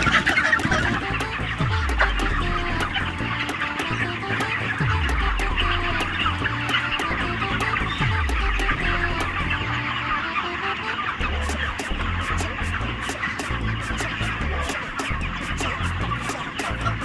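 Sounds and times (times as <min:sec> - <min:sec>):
background music with bass: 0:00.0 - 0:17.0
chickens peeping and clucking: 0:00.0 - 0:17.0
falling bass sweeps: 0:04.8 - 0:10.0.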